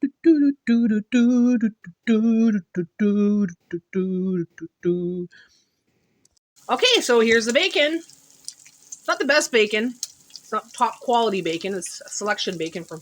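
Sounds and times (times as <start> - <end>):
person singing unaccompanied: 0.0 - 5.4, 9.1 - 13.0.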